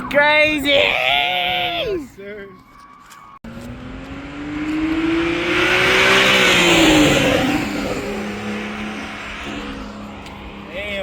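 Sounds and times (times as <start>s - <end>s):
car accelerating past: 3.5s - 11.0s.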